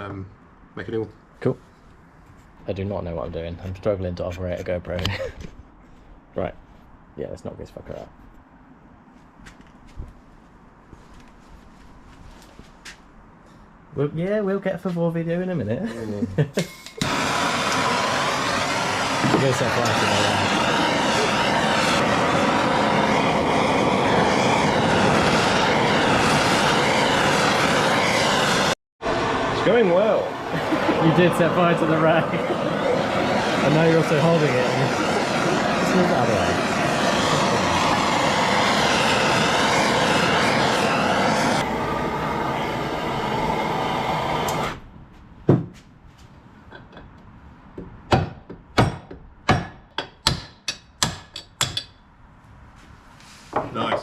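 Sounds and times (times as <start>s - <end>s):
gas torch hissing: 17.0s - 44.8s
blowtorch flame roaring: 17.0s - 44.9s.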